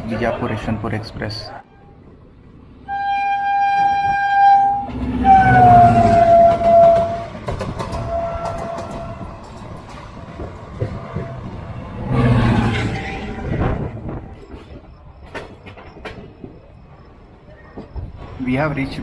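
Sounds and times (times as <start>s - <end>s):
train rumble: 0.0s - 19.0s
train horn blasts: 2.8s - 9.4s
train wheels clattering: 3.8s - 18.4s.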